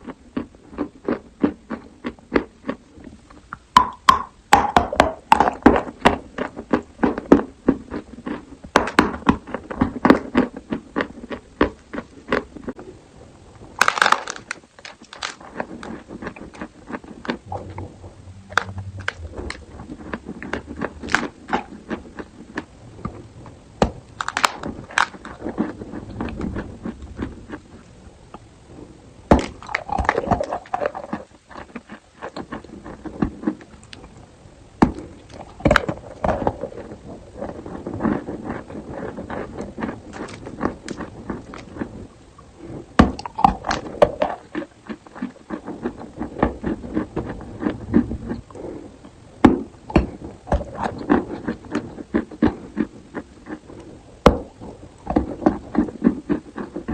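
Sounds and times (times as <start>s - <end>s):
chalk being crunched and chewed: 13.8s - 17.4s, 24.2s - 27.6s, 37.4s - 41.9s.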